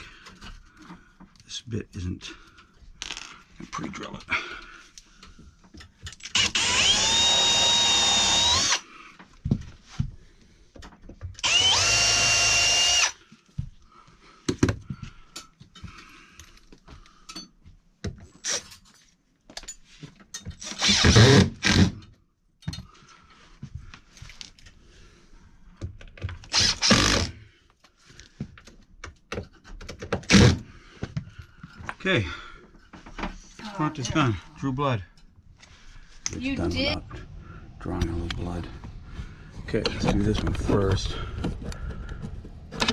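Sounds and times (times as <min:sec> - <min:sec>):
power drill whining: 0:06.2 - 0:08.9, 0:11.4 - 0:13.2, 0:20.6 - 0:22.0, 0:26.5 - 0:27.4, 0:30.3 - 0:30.6.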